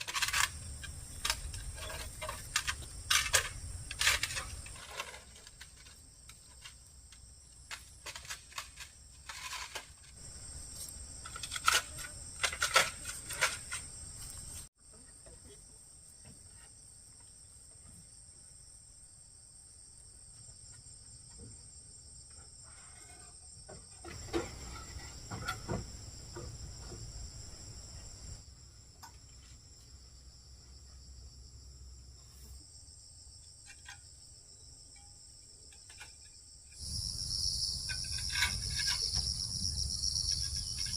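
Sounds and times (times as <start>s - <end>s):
insects chirring: 0.0s - 40.9s
knocks and clatter from handwork: 23.0s - 27.2s.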